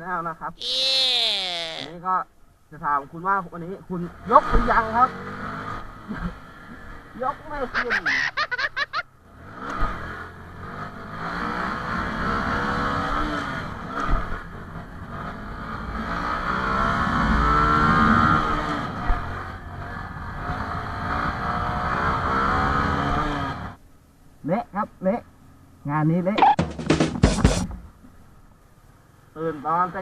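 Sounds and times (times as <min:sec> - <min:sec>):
motorcycle engine revving: 0:04.1 - 0:07.6, 0:09.2 - 0:23.8.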